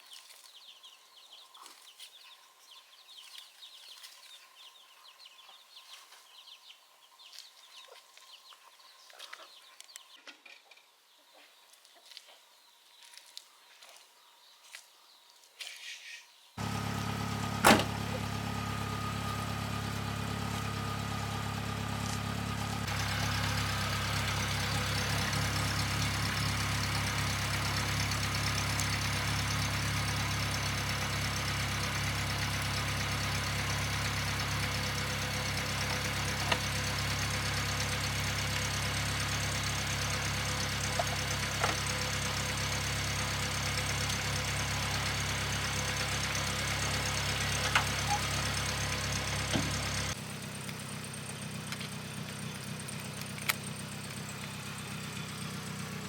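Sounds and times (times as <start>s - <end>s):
engine running steadily: 16.6s - 56.0s.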